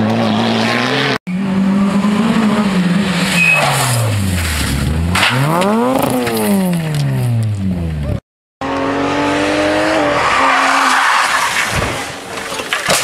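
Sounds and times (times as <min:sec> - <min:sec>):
rally car engine revving: 0:00.0 - 0:11.6.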